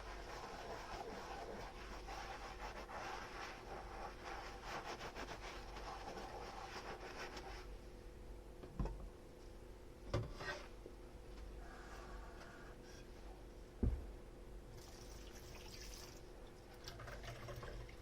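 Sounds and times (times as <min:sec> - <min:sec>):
sponge scrubbing a dish: 0:00.0 - 0:07.7.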